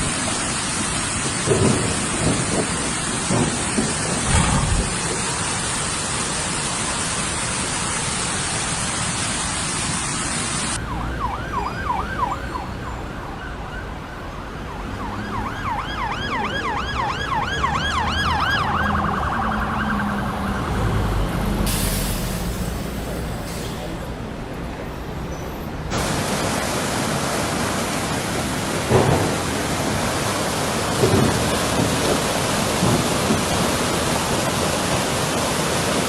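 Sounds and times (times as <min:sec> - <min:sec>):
heavy rain pouring: 0:00.0 - 0:10.8, 0:25.9 - 0:36.0
low vehicle rumble: 0:03.4 - 0:05.8
emergency siren yelping: 0:10.8 - 0:20.8.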